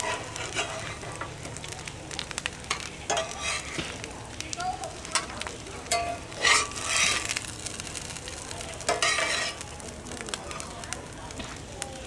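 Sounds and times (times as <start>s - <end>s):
metal spatula scraping pan: 0.0s - 1.3s, 3.0s - 3.9s, 5.9s - 7.4s, 8.8s - 9.6s
frying in hot oil: 0.0s - 12.0s.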